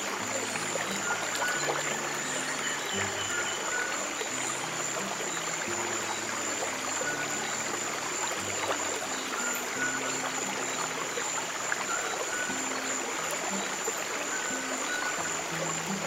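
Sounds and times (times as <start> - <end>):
soft low music notes: 0.0 - 16.0
stream water flowing: 0.0 - 16.0.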